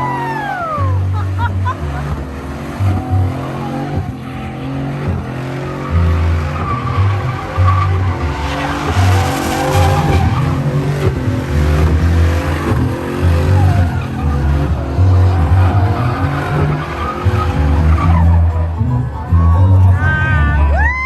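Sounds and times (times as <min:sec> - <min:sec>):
truck engine at high revs: 0:00.0 - 0:20.7
tyres spinning and screeching: 0:00.0 - 0:20.8.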